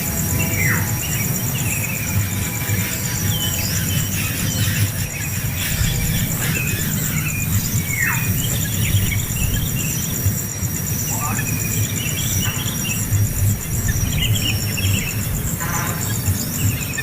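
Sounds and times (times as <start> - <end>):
bird chirps: 0.0 - 17.0
high pulsing insect trill: 0.0 - 17.0
low rumbling noise: 0.0 - 17.0
downward-sliding bird calls: 0.2 - 10.4.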